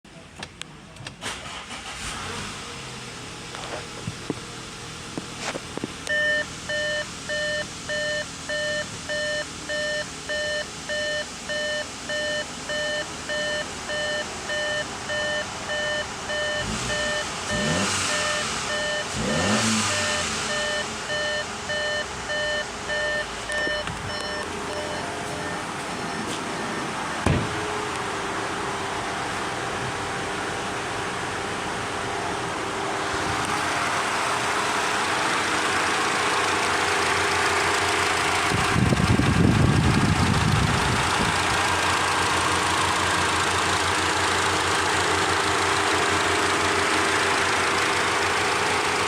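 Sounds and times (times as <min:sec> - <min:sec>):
car engine starting and idling: 0:00.1 - 0:49.0
car engine revving: 0:01.2 - 0:07.3, 0:13.7 - 0:49.0
dashboard warning chime beeping: 0:06.1 - 0:27.9.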